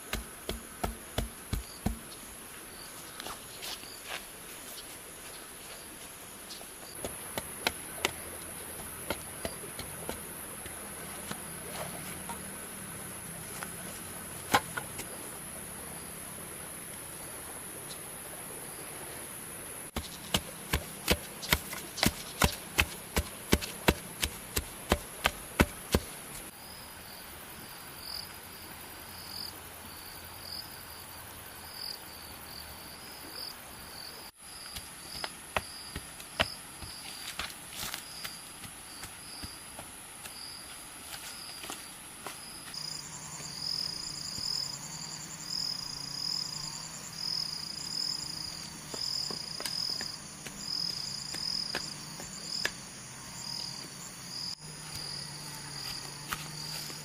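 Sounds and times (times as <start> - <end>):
hand tools striking bamboo: 0.0 - 2.1, 14.4 - 15.1, 20.0 - 26.1
insects droning: 0.0 - 57.0.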